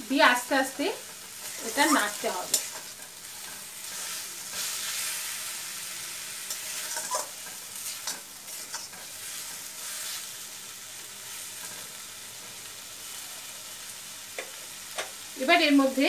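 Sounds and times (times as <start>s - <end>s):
food sizzling in oil: 0.0s - 16.0s
metal spatula scraping a pan: 1.4s - 5.4s, 6.4s - 10.3s.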